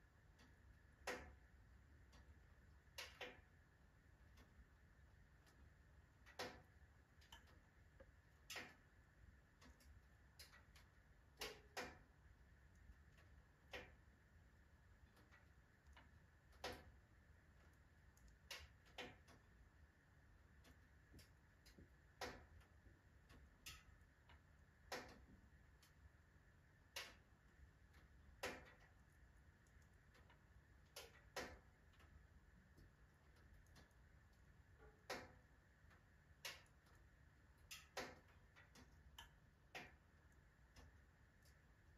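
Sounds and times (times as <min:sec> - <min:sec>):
faint steady hiss: 0:00.0 - 0:41.9
firewood crackling in stove: 0:00.0 - 0:41.9.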